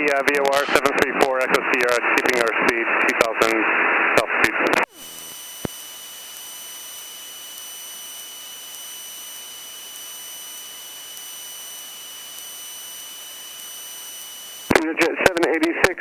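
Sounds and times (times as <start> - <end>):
faint high whine tones: 0.0 - 16.0
electrical hiss: 4.9 - 14.8.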